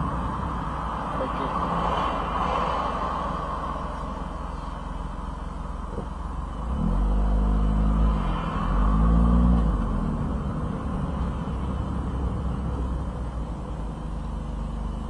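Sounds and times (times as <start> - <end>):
small car engine revving: 5.9 - 11.8.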